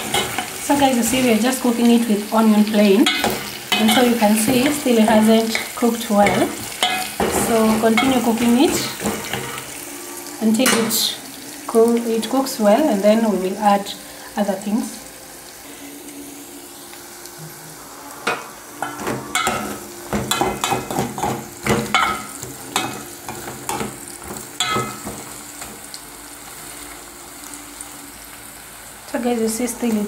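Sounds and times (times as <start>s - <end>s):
vegetables sizzling in oil: 0.0s - 30.0s
spoon scraping a metal pot: 5.5s - 9.7s.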